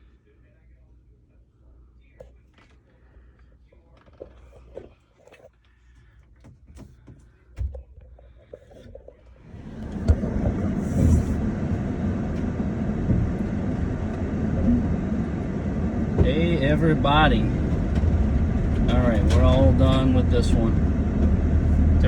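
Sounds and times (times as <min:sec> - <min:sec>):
vehicle rumbling: 0:08.7 - 0:22.0.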